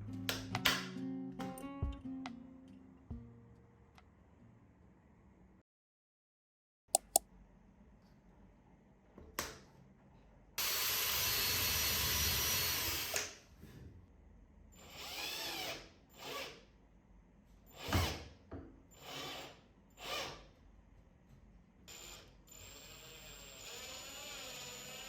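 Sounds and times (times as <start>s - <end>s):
cordless drill driving screws: 10.6s - 13.3s, 14.8s - 16.6s, 21.9s - 25.0s.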